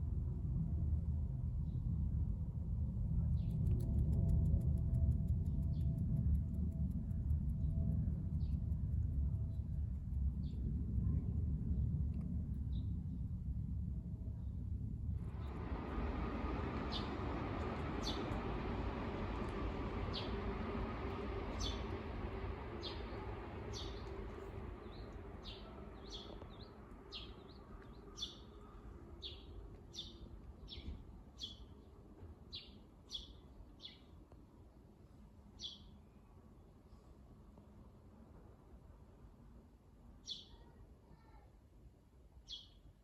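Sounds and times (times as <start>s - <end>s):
low rumble: 0.0s - 30.7s.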